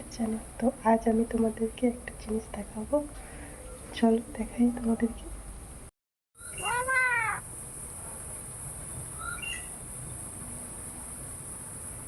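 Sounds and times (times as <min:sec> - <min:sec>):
faint bird chirp: 0:06.4 - 0:07.4, 0:08.9 - 0:10.2
myna calling: 0:06.4 - 0:07.5.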